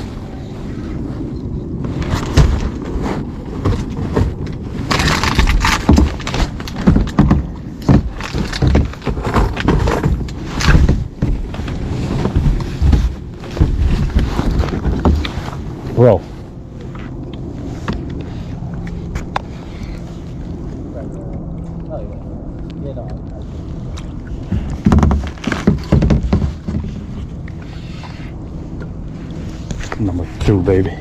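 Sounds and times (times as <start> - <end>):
knocks and splashes against kayak: 1.9 - 20.1, 23.8 - 29.0.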